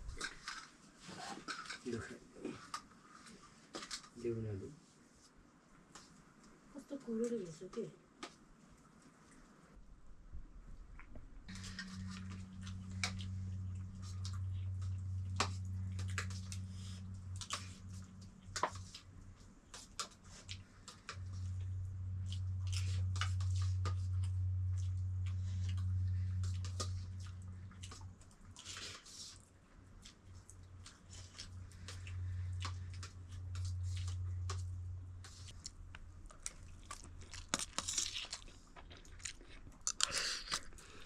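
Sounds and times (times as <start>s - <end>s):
small clicks and crackles: 11.0s - 40.8s.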